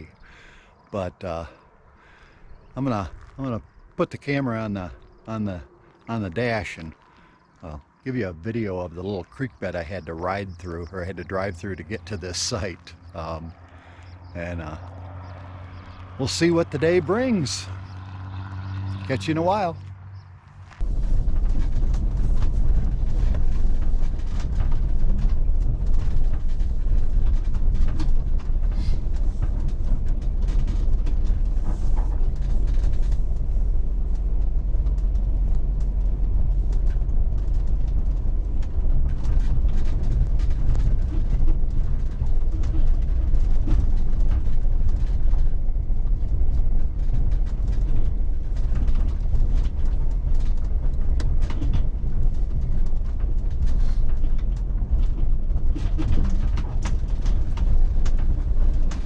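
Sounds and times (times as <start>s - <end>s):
engine and road rumble: 0.0s - 59.0s
small knocks and rattles: 20.7s - 59.0s.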